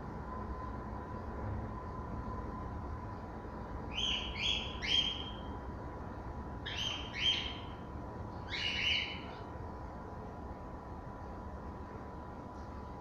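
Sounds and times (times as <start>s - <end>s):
parrots squawking: 6.7s - 7.7s, 8.5s - 9.3s.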